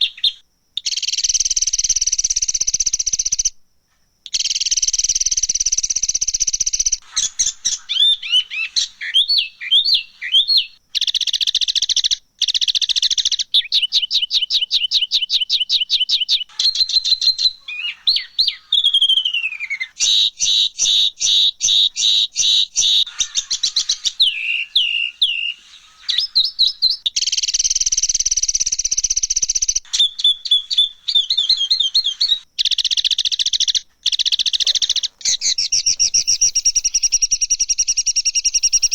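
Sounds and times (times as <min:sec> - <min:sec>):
harsh songbird calls: 0:00.0 - 0:03.5, 0:04.3 - 0:38.9
bird whistle falling: 0:16.5 - 0:38.9.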